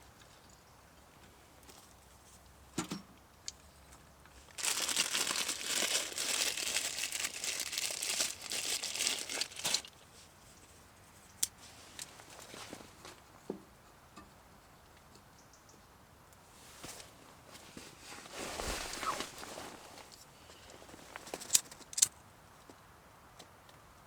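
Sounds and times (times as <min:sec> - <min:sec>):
crinkly sheet being crumpled: 0:04.5 - 0:09.9, 0:17.6 - 0:20.2.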